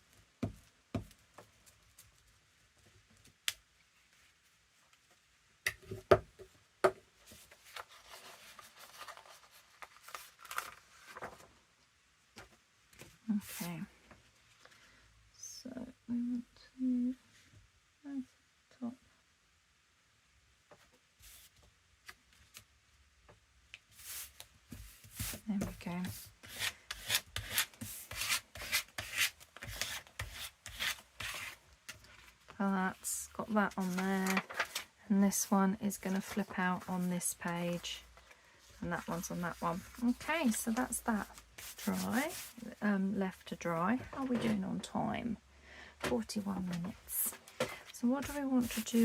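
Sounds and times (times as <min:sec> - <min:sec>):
paper rustling: 0:07.2 - 0:11.5, 0:33.6 - 0:34.9, 0:36.0 - 0:42.7, 0:46.7 - 0:49.0
paper being rubbed down: 0:41.6 - 0:42.6.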